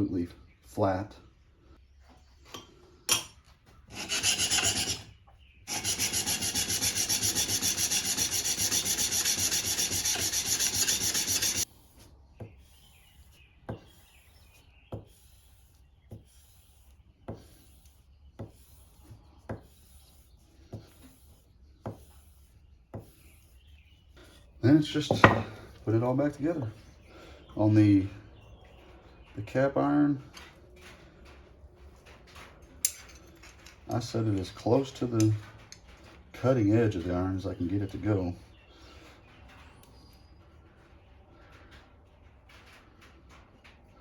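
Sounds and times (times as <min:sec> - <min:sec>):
plane iron scrubbing on sharpening stone: 0:03.9 - 0:11.9
light tapping strokes: 0:05.7 - 0:23.6.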